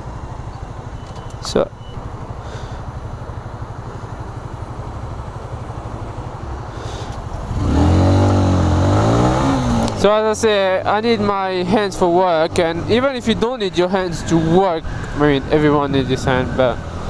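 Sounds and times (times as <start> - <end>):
motorcycle engine revving: 6.9 - 13.5.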